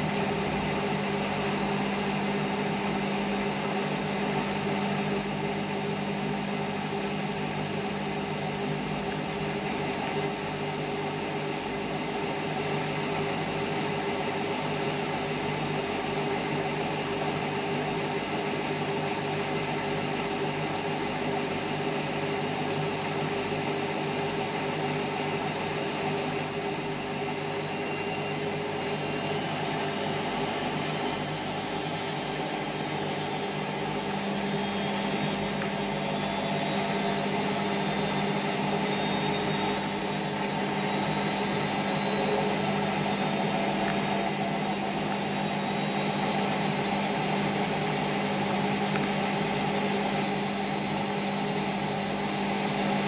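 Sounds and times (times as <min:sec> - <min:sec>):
dense whirring drone: 0:26.7 - 0:49.6.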